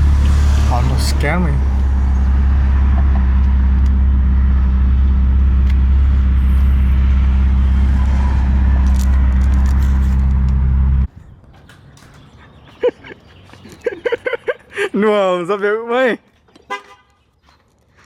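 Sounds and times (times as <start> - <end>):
car engine running: 0.0 - 11.1.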